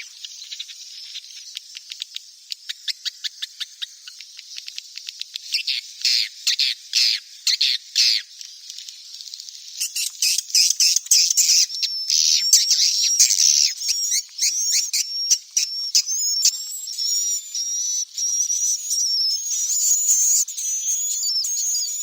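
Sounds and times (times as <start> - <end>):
bird chicks chirping: 9.8 - 22.0
thin wavering high whistle: 13.9 - 22.0.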